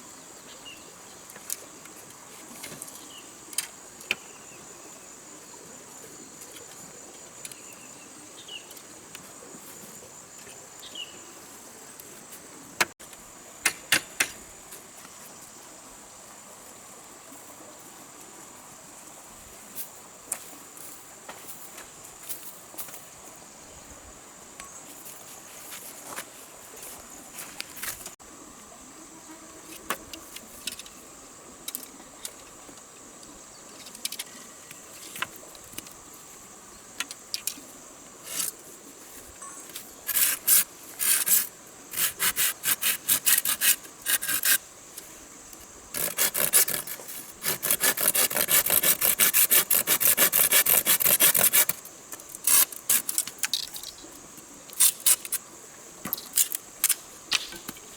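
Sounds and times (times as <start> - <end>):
light knocks and scrapes: 38.2 - 38.7, 39.7 - 45.1
hand saw cutting wood: 40.1 - 44.6, 45.9 - 53.4.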